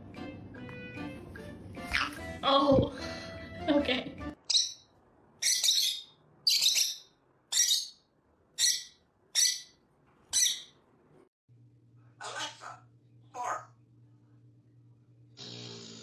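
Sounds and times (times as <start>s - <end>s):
parrot squawking: 4.4s - 8.0s, 8.6s - 10.8s, 12.2s - 13.7s.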